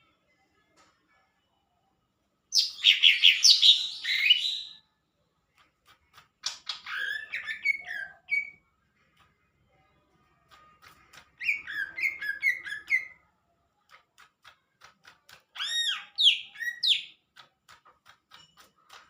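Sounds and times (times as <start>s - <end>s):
bird singing: 2.5s - 4.8s.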